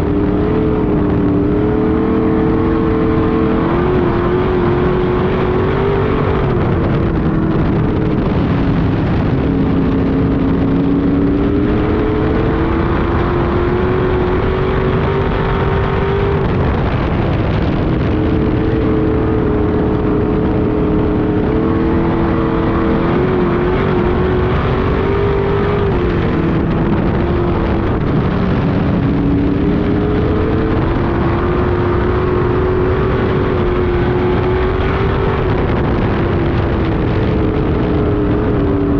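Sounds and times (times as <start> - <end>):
race car engine running hard: 0.0 - 38.9.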